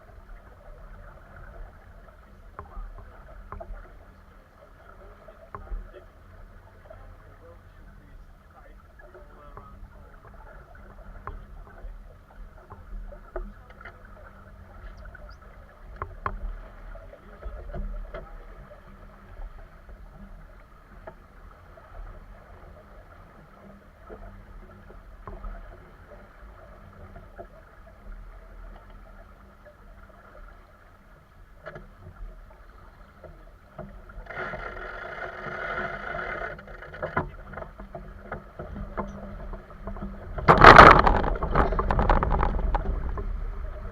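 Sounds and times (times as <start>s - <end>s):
boat engine low rumble: 0.0s - 43.9s
rush of water or wind: 0.0s - 43.9s
knocks and creaks: 1.4s - 4.2s, 5.3s - 6.1s, 8.1s - 21.3s, 31.6s - 43.9s.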